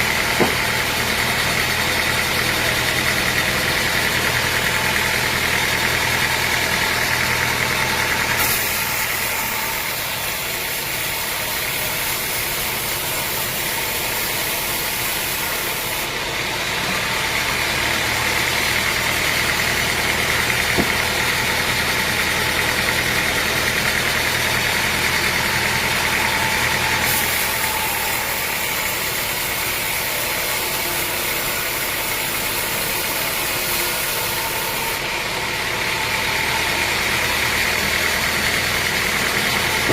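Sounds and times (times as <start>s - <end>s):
high-pitched hissing machinery: 8.3s - 16.1s, 24.6s - 35.1s
low motor hum: 16.3s - 28.9s, 37.8s - 39.9s.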